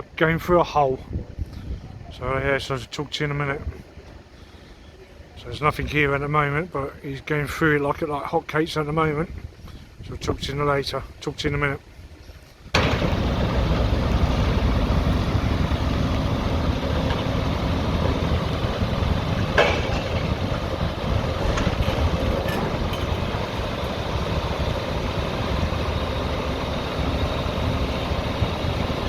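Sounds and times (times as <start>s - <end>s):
excavator diesel engine running: 12.8s - 29.0s.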